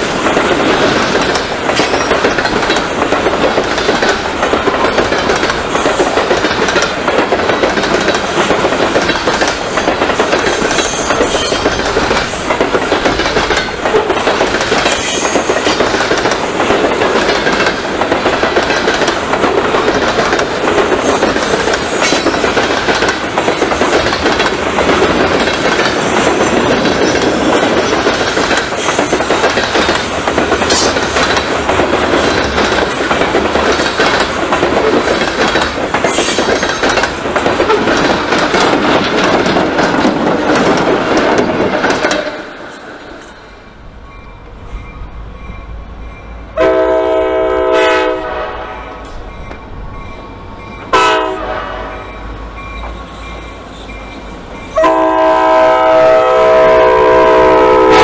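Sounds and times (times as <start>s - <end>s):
freight train wheels rolling on rail: 0.0s - 58.0s.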